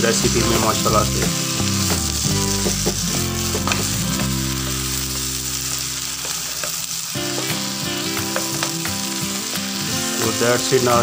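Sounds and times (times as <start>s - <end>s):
vegetables sizzling in a wok: 0.0s - 11.0s
spatula scraping and tapping pan: 3.5s - 5.3s, 6.2s - 9.1s.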